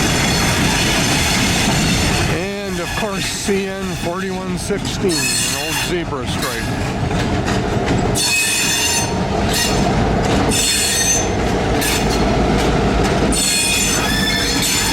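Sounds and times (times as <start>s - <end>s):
train wheels squealing: 0.0s - 4.3s, 5.1s - 5.9s, 8.2s - 9.8s, 10.5s - 12.2s, 13.3s - 14.9s
low rumble of rolling cars: 0.0s - 14.9s.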